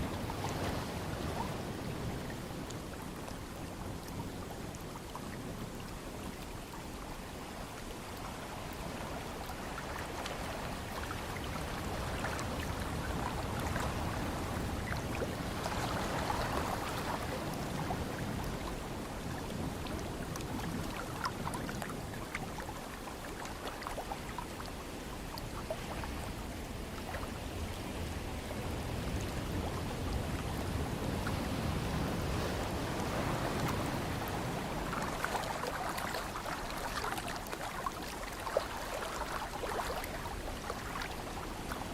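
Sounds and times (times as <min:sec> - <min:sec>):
ocean waves washing in: 0:08.0 - 0:41.9.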